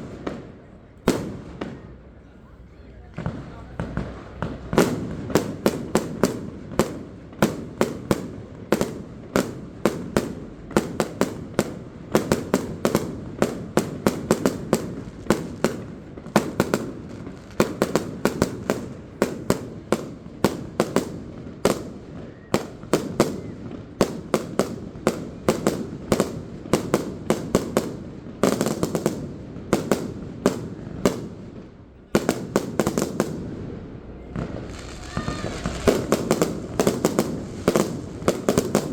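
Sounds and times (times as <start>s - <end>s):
firework shells bursting: 34.1s - 38.9s.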